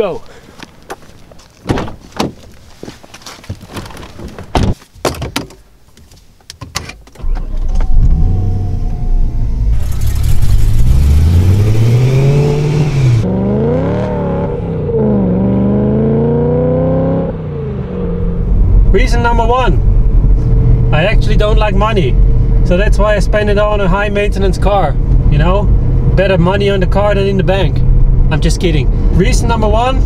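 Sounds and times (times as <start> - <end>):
clicks and knocks in car: 1.6 - 2.5, 3.4 - 7.2
car engine accelerating: 7.2 - 30.0.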